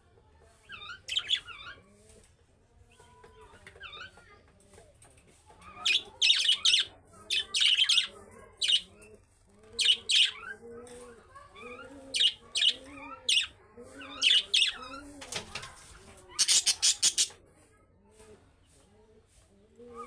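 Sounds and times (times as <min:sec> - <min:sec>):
budgerigars chirping: 0:16.4 - 0:17.4.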